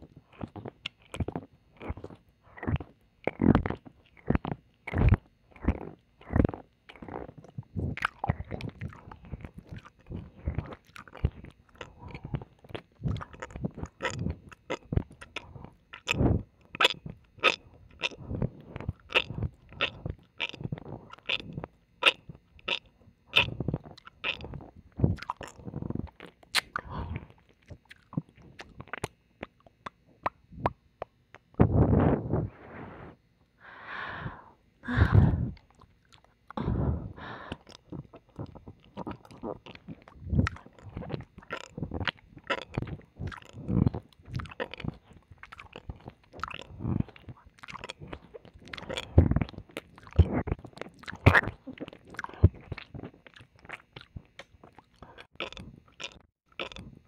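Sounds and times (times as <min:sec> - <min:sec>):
lip smacks: 0:25.0 - 0:31.6
tongue clicks: 0:25.2 - 0:31.5
wet slurps: 0:37.5 - 0:56.9.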